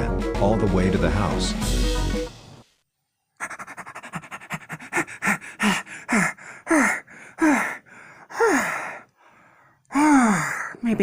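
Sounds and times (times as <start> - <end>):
person panting hard: 3.4 - 10.7.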